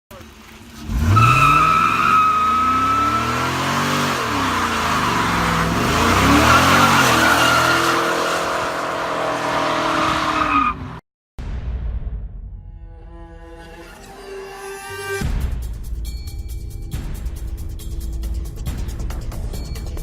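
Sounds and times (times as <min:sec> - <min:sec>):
car engine revving: 0:00.2 - 0:10.8
tires squealing: 0:00.6 - 0:11.0.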